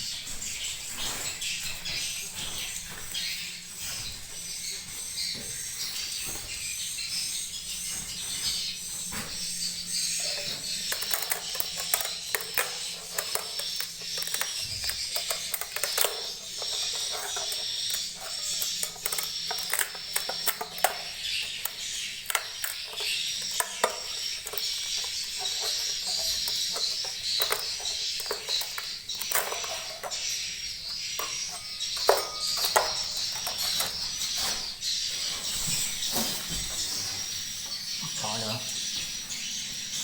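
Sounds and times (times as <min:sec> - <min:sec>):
sharp clicks and knocks: 0:10.1 - 0:34.6.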